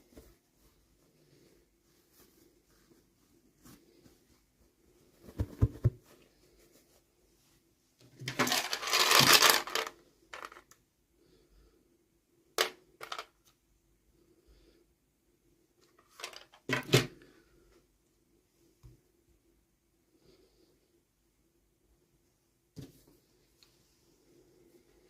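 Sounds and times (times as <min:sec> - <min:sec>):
packaging rustling: 0:08.3 - 0:10.6
plastic toy pieces clicking: 0:08.4 - 0:10.7.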